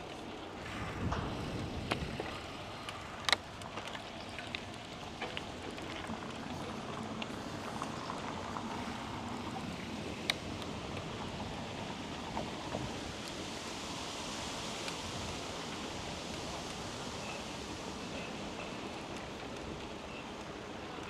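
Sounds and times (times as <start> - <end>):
bicycle clicks and rattles: 0.0 - 8.5
tyre and wind hiss: 0.0 - 21.0.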